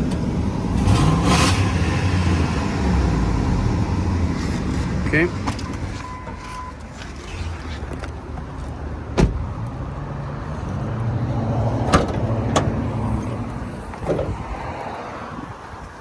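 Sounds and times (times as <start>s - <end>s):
truck engine idling: 0.0s - 16.0s
hood latch clicks and clunks: 9.1s - 9.5s, 11.9s - 12.8s, 14.0s - 14.4s.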